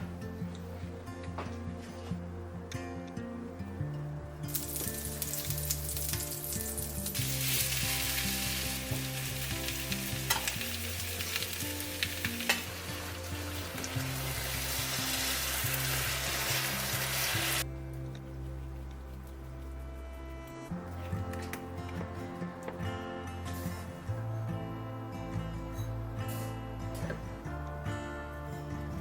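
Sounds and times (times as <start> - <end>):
pancakes sizzling in oil: 4.5 - 17.6.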